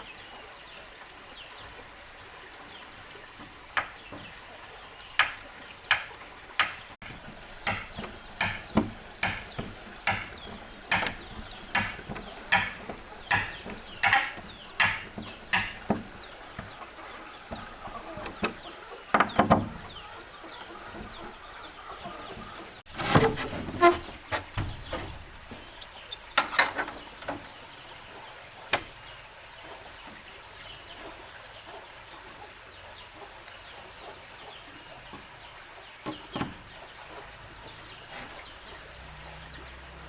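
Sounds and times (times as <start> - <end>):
scattered knocks: 5.2 - 26.7.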